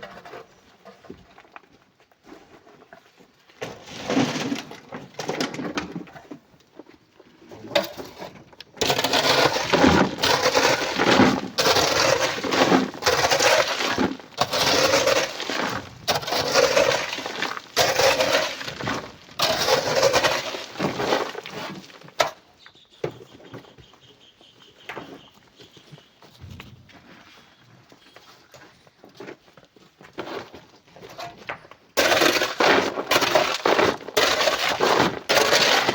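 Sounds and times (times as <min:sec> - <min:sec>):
sand and coral rubble being shovelled: 0:02.3 - 0:06.1, 0:07.9 - 0:22.3, 0:32.0 - 0:35.9.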